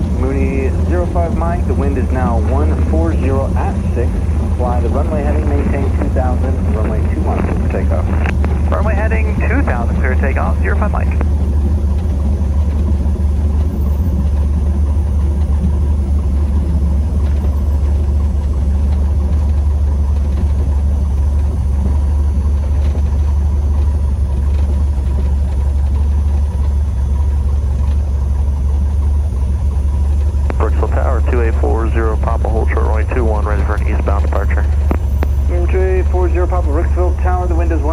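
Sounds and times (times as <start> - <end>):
airplane engine and propeller droning: 0.0 - 37.9.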